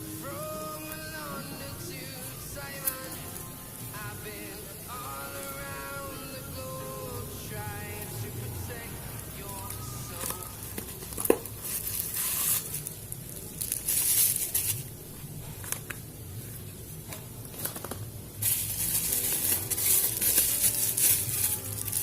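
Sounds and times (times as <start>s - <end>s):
plastic packaging crinkling: 9.3s - 22.0s.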